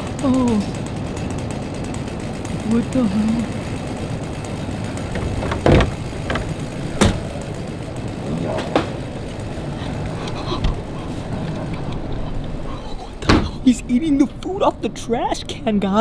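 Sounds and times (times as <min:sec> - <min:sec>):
steady background noise: 0:00.0 - 0:16.0
sharp knocks: 0:04.6 - 0:07.6.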